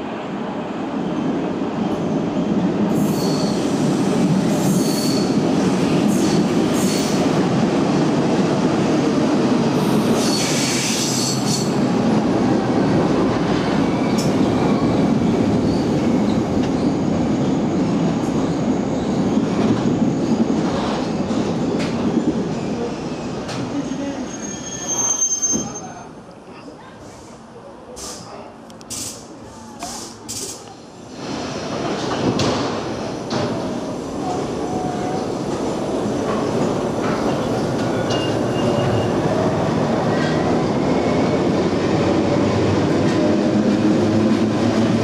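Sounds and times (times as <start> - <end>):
train wheels rumbling on rails: 1.3 - 25.8, 28.0 - 45.0
high wheel squeal: 3.0 - 3.6, 4.6 - 5.4, 10.2 - 11.8, 24.2 - 26.1.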